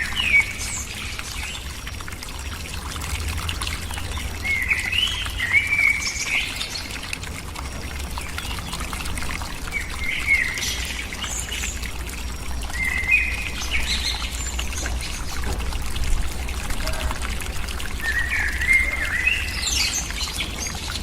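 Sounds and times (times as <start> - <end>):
bird warbling call: 18.0 - 21.0.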